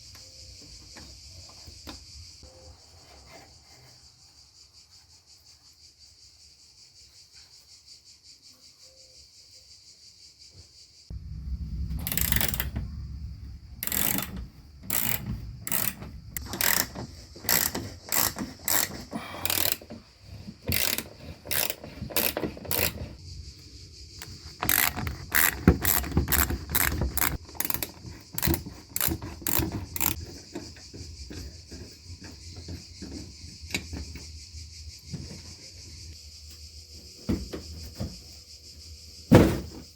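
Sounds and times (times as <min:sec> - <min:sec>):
ratchet wrench clicking: 0:12.0 - 0:12.8, 0:13.8 - 0:19.9, 0:20.6 - 0:23.0, 0:24.2 - 0:30.2.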